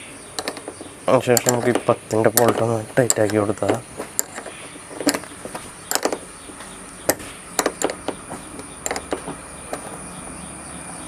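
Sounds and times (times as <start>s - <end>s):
wrench clicking on bolt: 0.4s - 6.3s, 7.0s - 9.9s.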